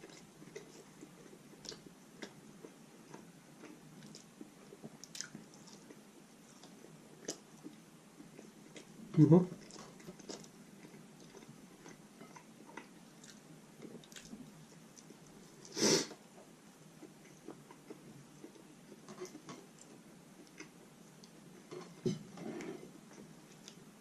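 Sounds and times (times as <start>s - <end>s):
chewing with wet mouth clicks: 0.0s - 9.0s, 9.6s - 15.4s, 17.0s - 21.4s.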